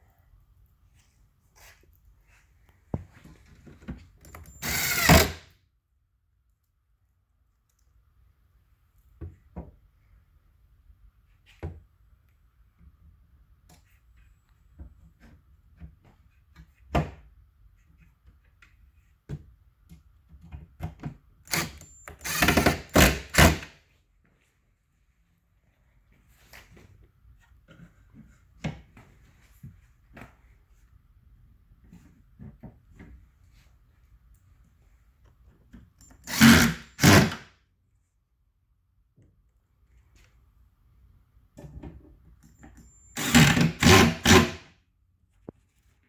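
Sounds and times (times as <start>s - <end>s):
power drill driving screws: 4.5s - 5.5s, 21.5s - 23.7s, 36.2s - 37.5s, 43.1s - 44.6s.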